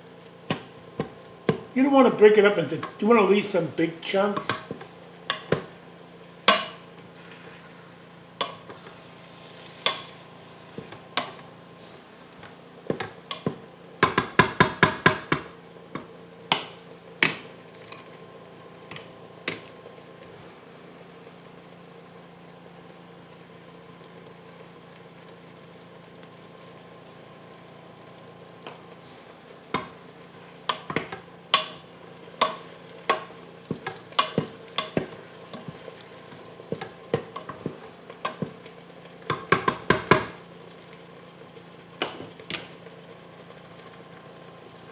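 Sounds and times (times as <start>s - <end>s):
steady low hum: 0.0s - 44.9s
utensil knocking on pot: 32.4s - 35.2s, 39.3s - 40.4s.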